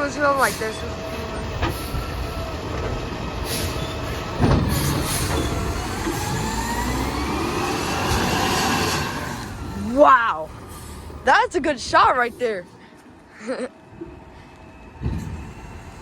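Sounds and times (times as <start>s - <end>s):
garbage truck engine revving: 1.4s - 10.0s.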